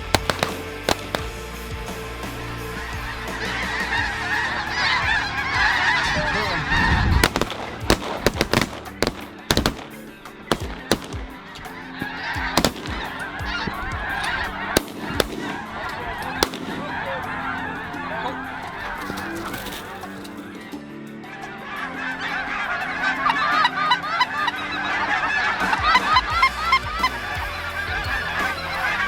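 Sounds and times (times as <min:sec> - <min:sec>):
shotgun shots: 0:00.0 - 0:02.0, 0:07.2 - 0:20.4
geese honking: 0:00.0 - 0:29.0.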